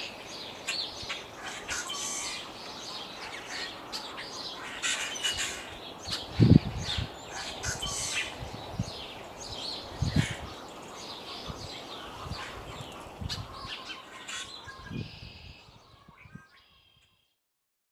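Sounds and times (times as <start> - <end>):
small birds chirping: 0.0 - 17.0
wind buffeting microphone: 5.3 - 13.8, 14.5 - 16.5.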